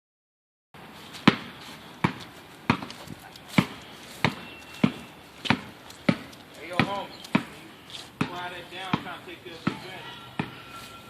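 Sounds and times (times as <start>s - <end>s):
basketball bouncing: 1.2s - 3.0s, 3.6s - 7.6s, 8.2s - 10.7s.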